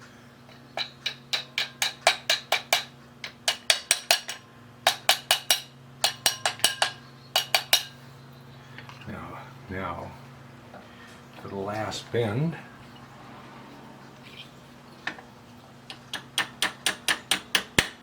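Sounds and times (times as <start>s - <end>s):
hammer tapping metal parts: 0.5s - 8.0s, 15.9s - 18.0s.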